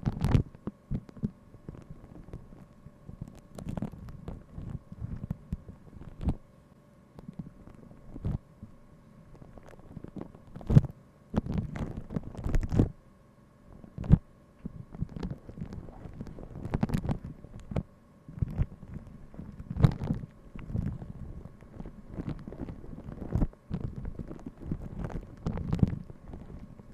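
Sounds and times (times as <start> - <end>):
faint steady hum: 0.0 - 26.9
rustling: 13.8 - 26.9.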